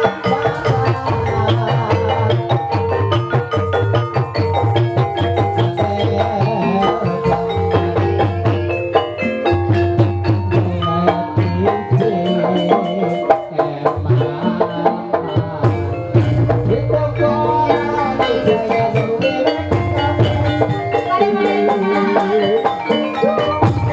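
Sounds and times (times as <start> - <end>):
drums: 0.0 - 23.9
mallet-struck keyed instruments: 0.0 - 23.9
low bass: 0.3 - 8.9, 15.4 - 20.8.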